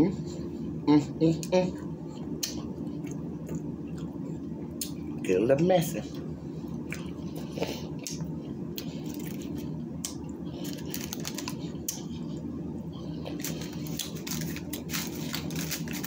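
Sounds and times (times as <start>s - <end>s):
steady low hum: 0.0s - 16.0s
chewing food close-up: 1.4s - 5.0s, 6.6s - 16.0s.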